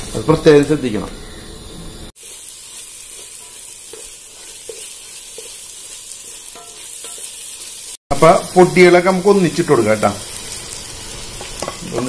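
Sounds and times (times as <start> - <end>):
onions sizzling in a frying pan: 1.6 - 12.0
spatula scraping a pan: 2.5 - 7.7.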